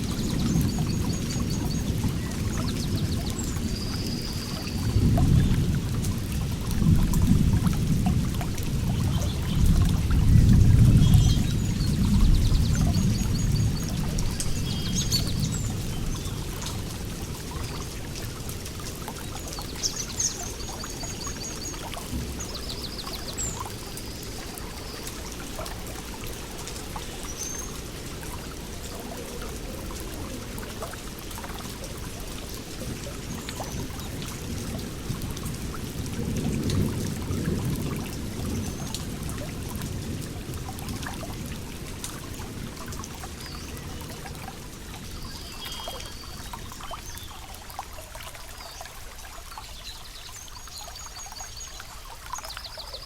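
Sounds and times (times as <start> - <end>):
water running and trickling: 0.0 - 53.0.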